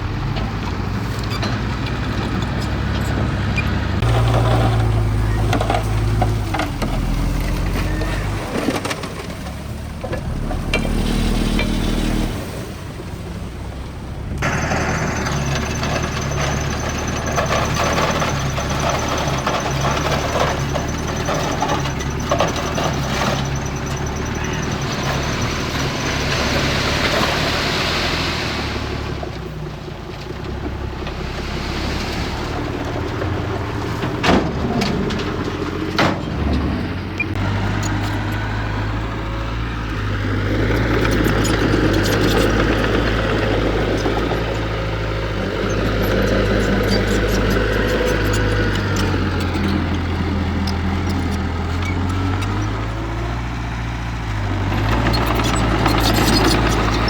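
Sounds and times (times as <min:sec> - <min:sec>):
machinery clatter: 0:00.0 - 0:13.1, 0:14.2 - 0:57.0
diesel machinery engine rumble: 0:00.0 - 0:57.0.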